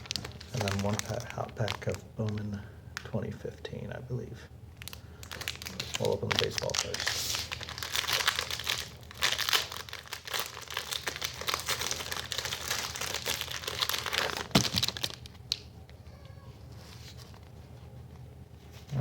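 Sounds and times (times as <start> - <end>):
plastic wrapper crinkling: 0.0 - 2.6, 4.7 - 17.6.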